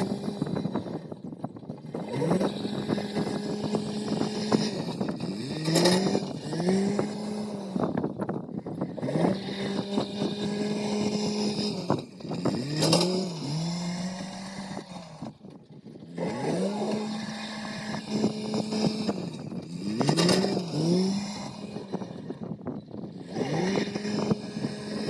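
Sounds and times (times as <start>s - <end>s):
machine engine revving: 0.0s - 25.0s.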